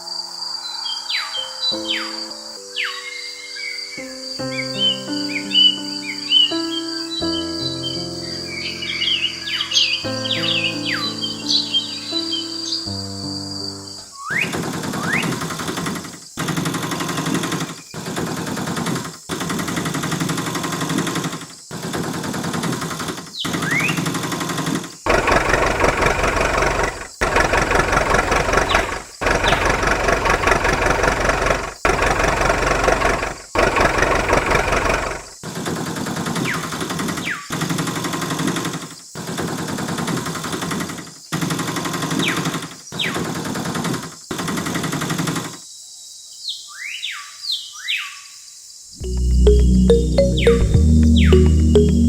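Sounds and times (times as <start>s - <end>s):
motor buzzing rattle: 24.0s - 35.4s
short rising chirps: 49.0s - 52.0s.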